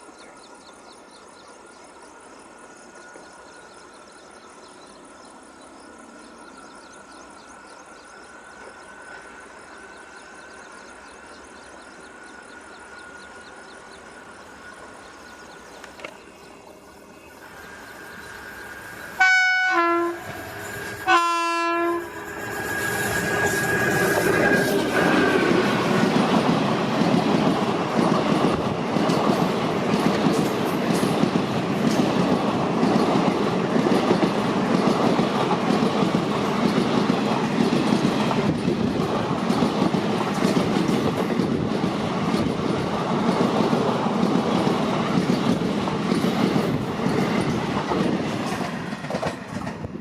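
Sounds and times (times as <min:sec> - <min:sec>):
train running noise: 0:00.0 - 0:50.0
locomotive horn blasts: 0:19.2 - 0:20.4, 0:21.0 - 0:22.1.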